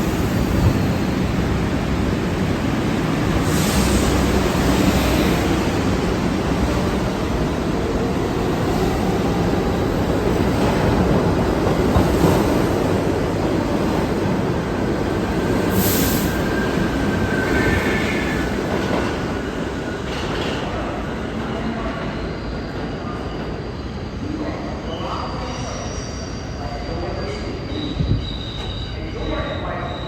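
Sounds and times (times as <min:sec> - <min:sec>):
subway train wheels rumbling: 0:00.0 - 0:30.0
wheel squeals: 0:25.3 - 0:30.0.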